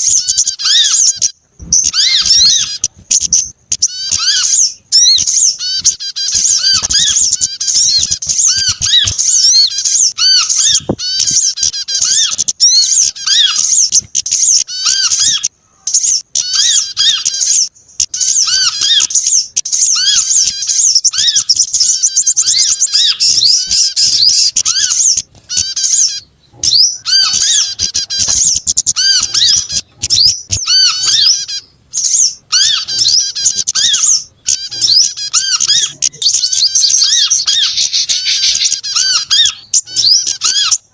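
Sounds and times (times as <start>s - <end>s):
songbirds chirping and twittering: 0.0s - 40.9s.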